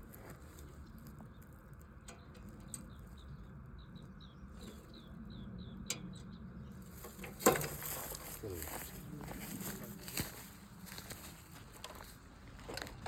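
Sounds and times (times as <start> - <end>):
bird chirping: 0.8 - 10.0.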